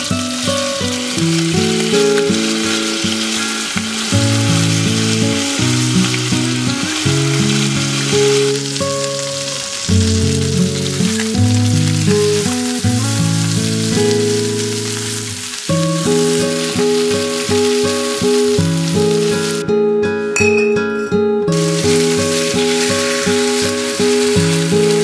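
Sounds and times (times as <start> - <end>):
chicken sizzling in oil: 0.0 - 19.6, 21.5 - 25.0.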